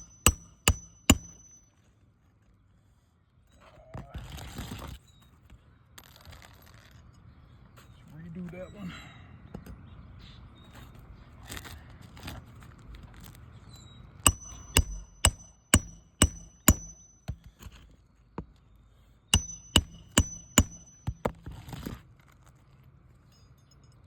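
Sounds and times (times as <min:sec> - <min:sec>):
hammer striking metal: 0:00.0 - 0:01.6, 0:14.3 - 0:17.6, 0:19.4 - 0:21.4.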